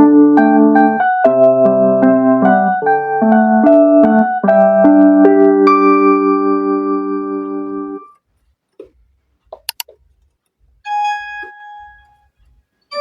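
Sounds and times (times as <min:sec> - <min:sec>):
electric piano chord: 0:00.0 - 0:08.1
held keyboard note: 0:00.0 - 0:08.2, 0:10.9 - 0:13.0
sharp clicks: 0:09.5 - 0:10.0.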